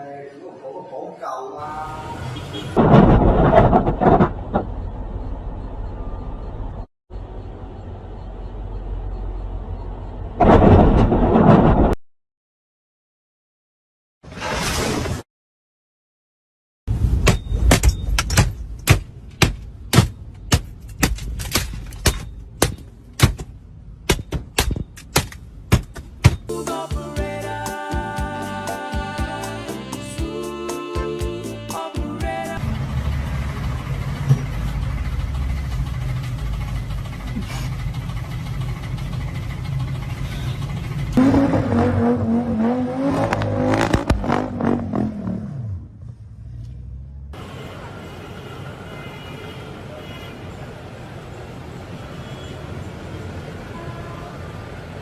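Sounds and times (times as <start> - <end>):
sharp knocks: 24.1 - 26.5
car engine revving: 40.9 - 47.3.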